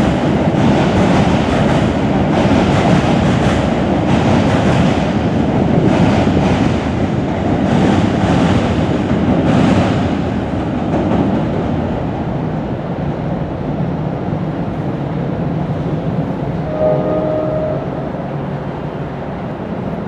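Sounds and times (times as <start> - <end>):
train wheels rhythmic clacking: 0.0 - 12.0
train rumble: 0.0 - 20.0.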